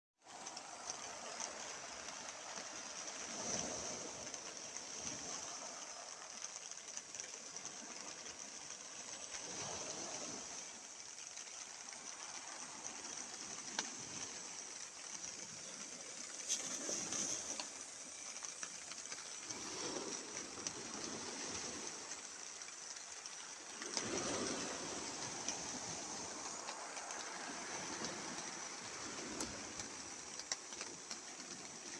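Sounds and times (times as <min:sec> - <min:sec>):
sea waves washing in: 0:00.2 - 0:31.9.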